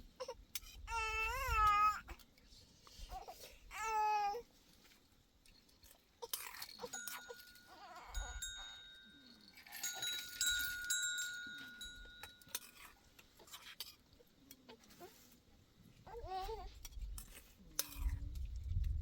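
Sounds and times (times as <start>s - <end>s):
metal ringing: 6.9s - 12.9s.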